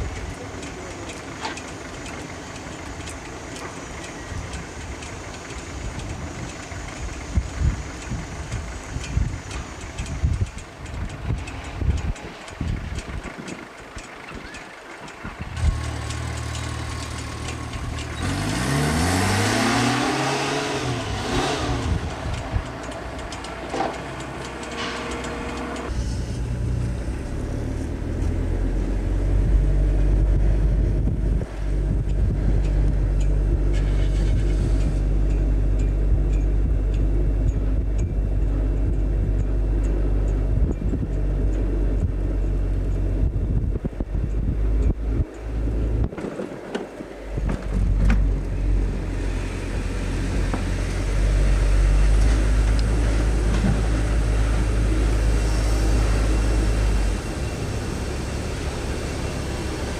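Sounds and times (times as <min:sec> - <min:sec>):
deep engine drone: 0:00.0 - 0:59.9
car engine note rising and falling: 0:15.3 - 0:59.9.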